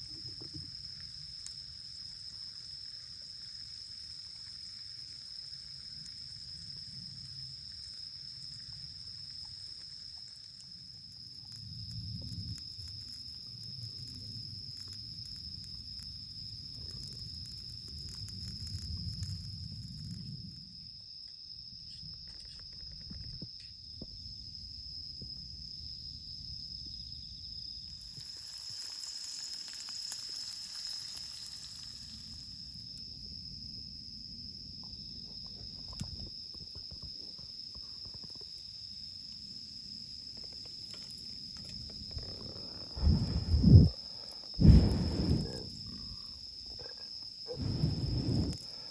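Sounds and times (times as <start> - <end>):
crickets chirping: 0.0 - 48.9
low background rumble: 42.0 - 46.9, 47.5 - 48.7
short low rumbles: 42.3 - 44.0, 44.6 - 46.3.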